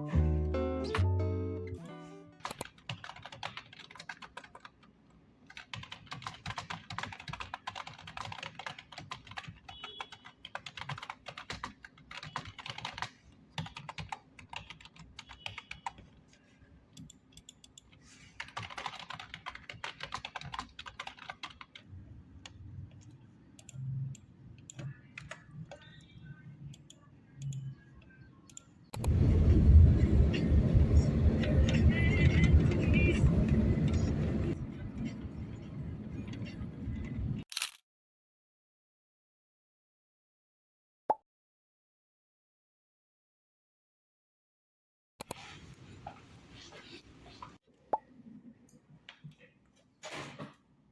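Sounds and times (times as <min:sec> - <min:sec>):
computer keyboard typing: 0:02.4 - 0:04.9, 0:05.5 - 0:16.2, 0:17.0 - 0:26.0
loud steady low rumble: 0:29.0 - 0:36.1.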